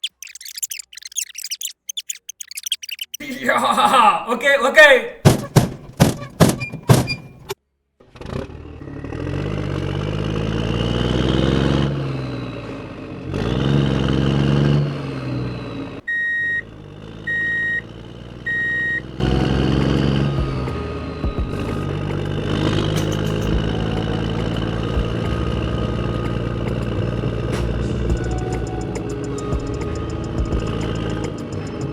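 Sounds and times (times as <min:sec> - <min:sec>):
knocks: 0:05.2 - 0:07.6
tractor engine revving: 0:05.2 - 0:31.9
short horn beeps: 0:16.1 - 0:16.7, 0:17.3 - 0:19.4.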